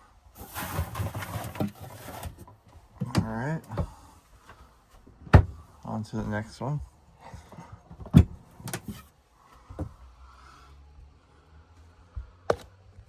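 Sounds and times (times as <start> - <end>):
cupboard doors knocking shut: 5.3 - 5.6.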